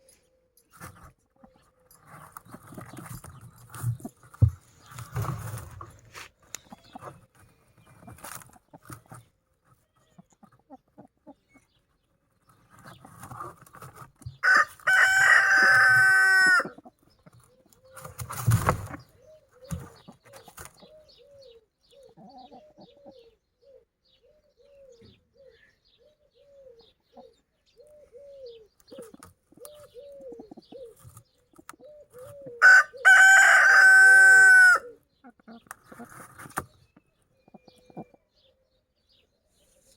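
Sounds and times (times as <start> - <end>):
chickens clucking: 0.8 - 23.8, 24.8 - 38.5
rooster crowing: 14.4 - 16.7, 32.6 - 34.9.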